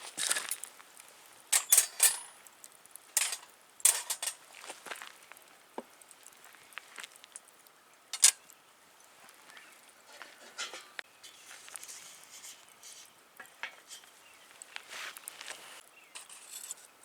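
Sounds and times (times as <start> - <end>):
cooking gear clicking and knocking: 1.5 - 2.4, 3.2 - 4.4, 8.2 - 8.4.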